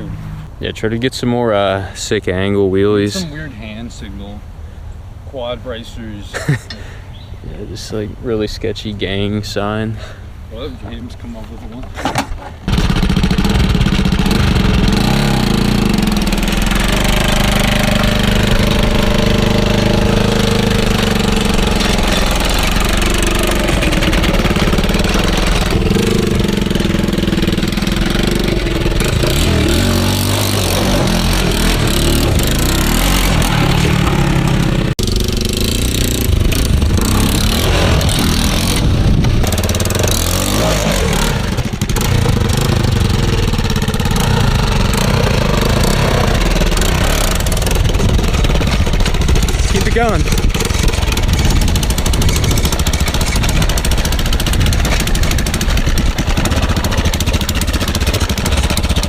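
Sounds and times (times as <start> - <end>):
quad engine revving: 0.0 - 0.5, 12.7 - 59.0.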